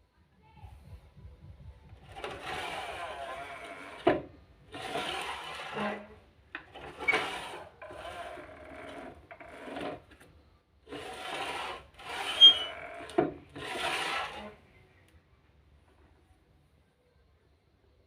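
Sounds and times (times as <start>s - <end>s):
hand tool scraping wood: 2.1s - 10.2s, 10.9s - 14.6s.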